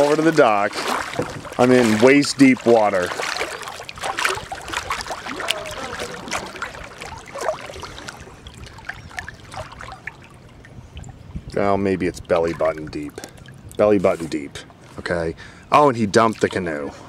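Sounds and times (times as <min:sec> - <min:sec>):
water splashing around wading person: 0:00.0 - 0:15.2, 0:16.1 - 0:17.0.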